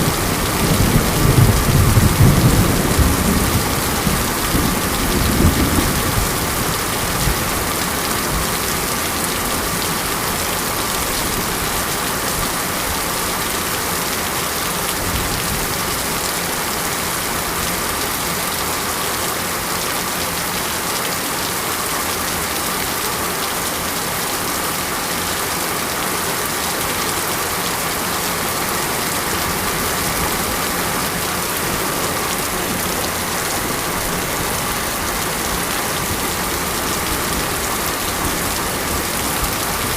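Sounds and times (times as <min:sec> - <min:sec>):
low thunder rumble: 0:00.0 - 0:08.5
steady rain hiss: 0:00.0 - 0:39.9.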